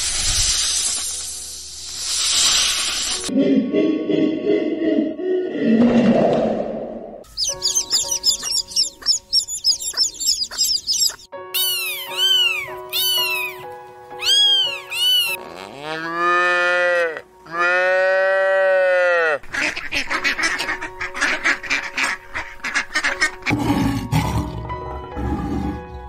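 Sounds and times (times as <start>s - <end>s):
background music: 7.1s - 26.0s
kitten meowing: 7.4s - 13.6s, 14.2s - 15.4s
rough noisy animal calls: 10.0s - 13.6s, 14.2s - 19.4s
cows mooing: 15.2s - 19.4s.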